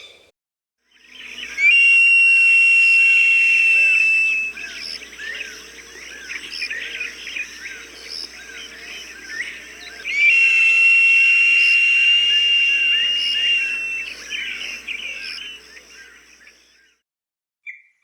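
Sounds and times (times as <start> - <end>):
long high-pitched falcon cry: 1.4 - 5.5, 9.8 - 15.6
small birds chirping: 3.6 - 16.7.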